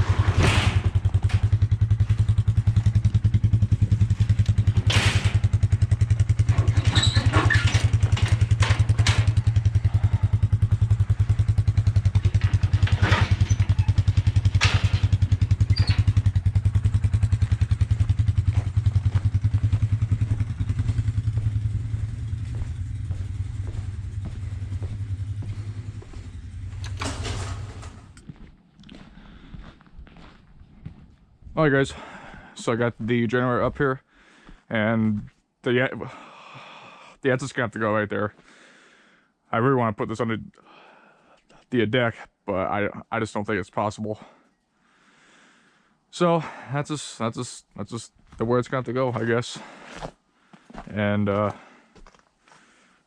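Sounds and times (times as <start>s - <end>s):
clattering knocks: 0.0s - 2.3s, 4.1s - 9.8s, 11.7s - 16.4s, 26.7s - 28.2s
quad engine running: 0.0s - 28.2s.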